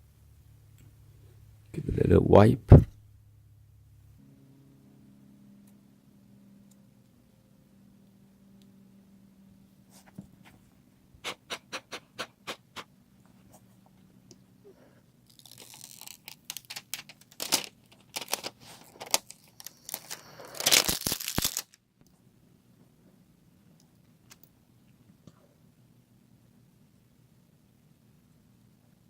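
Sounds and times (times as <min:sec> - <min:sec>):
plastic film crackling and peeling: 0:15.3 - 0:21.8.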